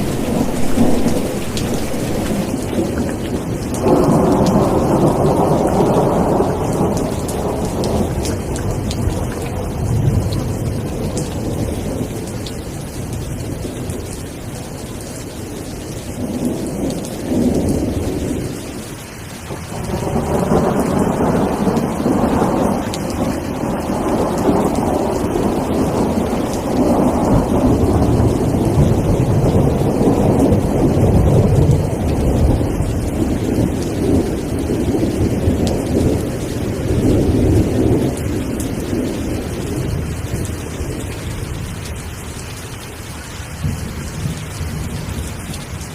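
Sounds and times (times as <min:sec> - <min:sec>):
rolling thunder: 0:00.0 - 0:14.1, 0:19.4 - 0:41.8
steady rain: 0:00.0 - 0:45.9.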